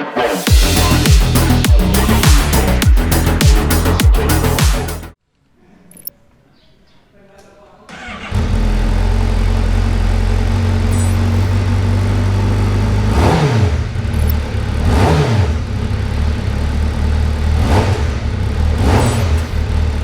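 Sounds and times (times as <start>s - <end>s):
motorcycle engine idling and revving: 0.5s - 5.2s, 8.0s - 20.0s.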